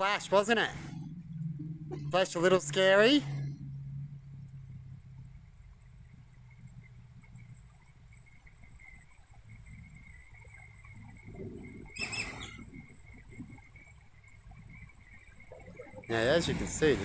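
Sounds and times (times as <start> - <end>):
faint low rumble: 0.0 - 17.0
bird call: 10.2 - 17.0.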